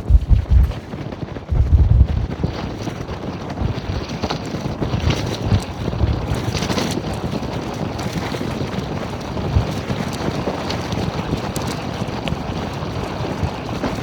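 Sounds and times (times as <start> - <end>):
storm wind buffeting microphone: 0.0 - 0.9, 1.5 - 2.9.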